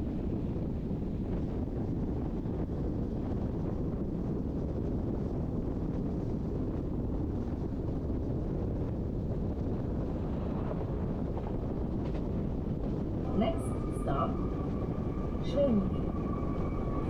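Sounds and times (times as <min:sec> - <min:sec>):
train wheels rumbling: 0:10.1 - 0:17.0.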